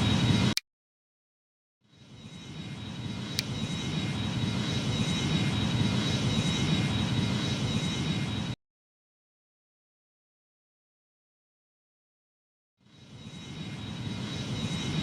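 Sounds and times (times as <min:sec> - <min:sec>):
jet engines whining: 0:00.0 - 0:00.6, 0:02.0 - 0:08.6, 0:12.9 - 0:15.0.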